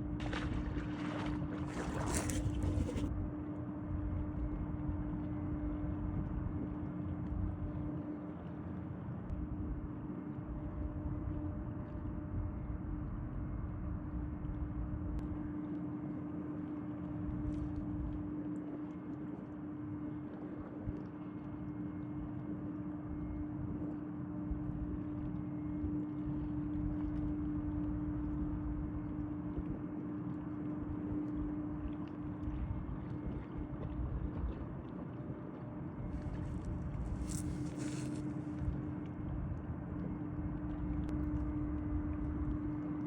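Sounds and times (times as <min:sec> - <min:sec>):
tugboat engine running: 0:00.0 - 0:03.3.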